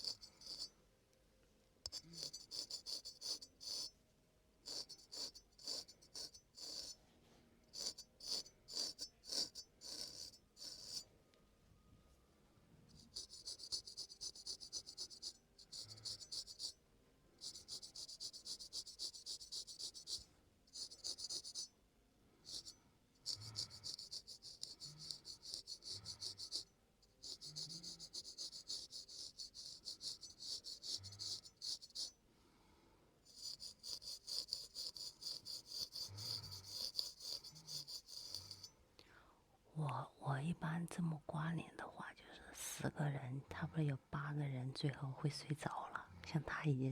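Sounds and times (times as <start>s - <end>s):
razor blade scraping skin: 0.0s - 0.7s, 1.9s - 3.9s, 4.6s - 7.0s, 7.7s - 11.0s, 12.9s - 16.8s, 17.4s - 21.7s, 22.5s - 32.2s, 33.3s - 38.7s.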